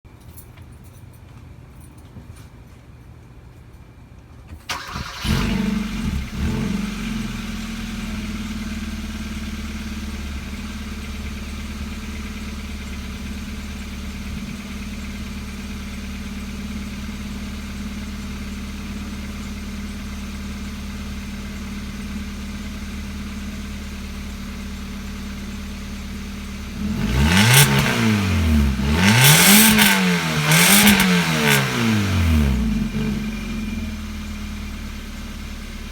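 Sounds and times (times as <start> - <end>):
car engine starting and idling: 4.6 - 35.9
car engine revving: 4.7 - 13.2, 26.6 - 34.8.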